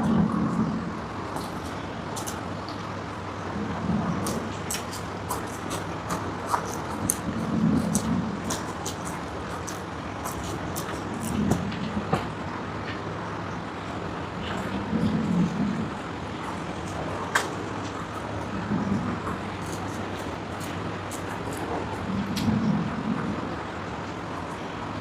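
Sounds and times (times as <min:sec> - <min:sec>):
steady background noise: 0:00.0 - 0:25.0
chewing and mouth clicks: 0:04.2 - 0:12.0.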